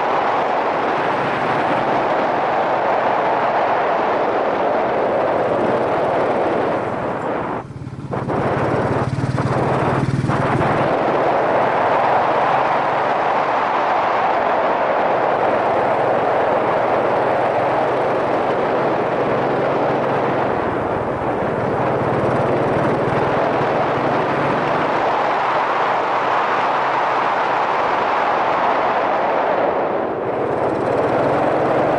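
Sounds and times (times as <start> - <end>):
wind rushing over microphone: 0.0 - 31.9
motorcycle engine running: 5.0 - 13.5, 15.4 - 25.3, 30.2 - 31.9.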